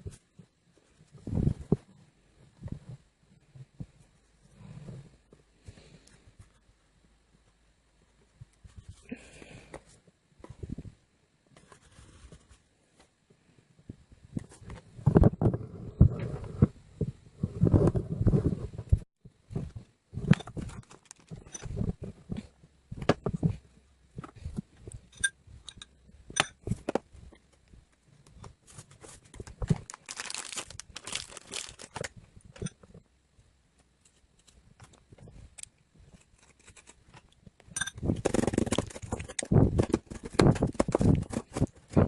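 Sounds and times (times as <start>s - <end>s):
crinkling and crunching handling: 19.5s - 23.6s, 26.6s - 33.0s, 33.8s - 42.0s.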